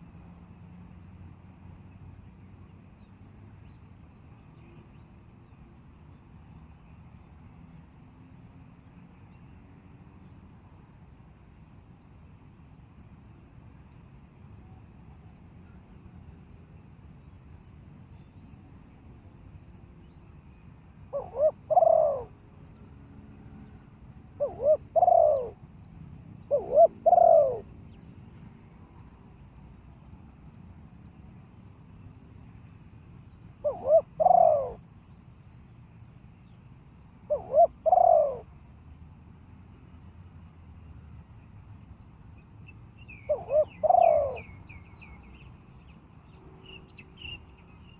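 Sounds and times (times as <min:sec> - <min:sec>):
small birds chirping: 0:18.2 - 0:22.9, 0:41.2 - 0:47.9
dove cooing: 0:21.1 - 0:22.4, 0:24.4 - 0:25.6, 0:26.4 - 0:27.7, 0:33.6 - 0:34.8, 0:37.3 - 0:38.5, 0:43.3 - 0:44.6.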